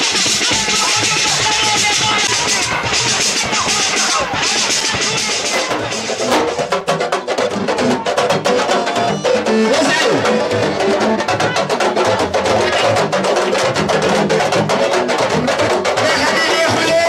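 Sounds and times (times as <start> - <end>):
drums playing fast rhythm: 0.0 - 17.0.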